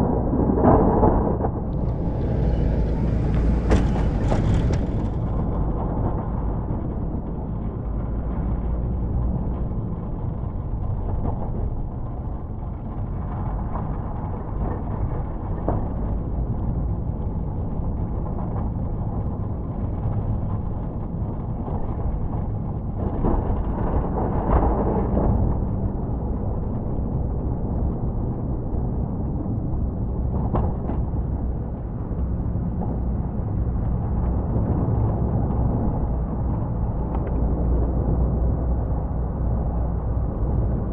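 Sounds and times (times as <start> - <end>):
rush of noise: 0.0 - 18.9, 22.4 - 40.9
truck engine running: 1.7 - 6.5.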